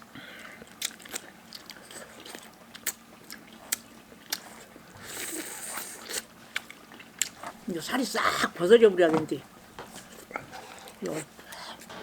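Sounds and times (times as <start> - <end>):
chewing and biting meat: 0.6 - 7.4.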